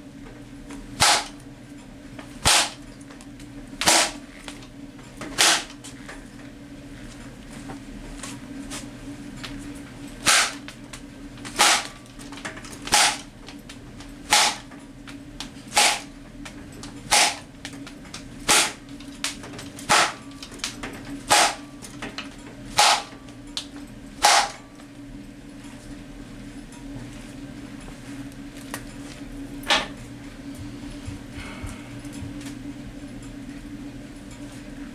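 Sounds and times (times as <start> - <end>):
low hum: 29.8 - 33.8.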